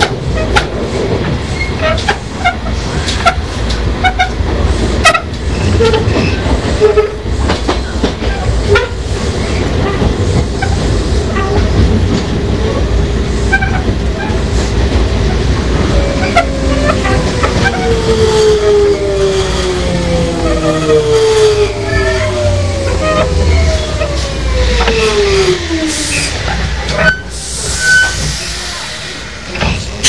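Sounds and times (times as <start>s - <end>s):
wheels clicking over rail joints: 0.0s - 18.2s
train rumble: 0.0s - 30.0s.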